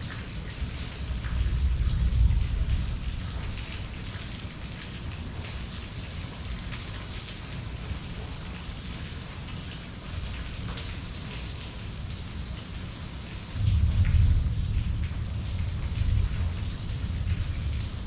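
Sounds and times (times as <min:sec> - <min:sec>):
raindrops pattering: 0:00.0 - 0:18.0
low rumble: 0:13.6 - 0:17.8.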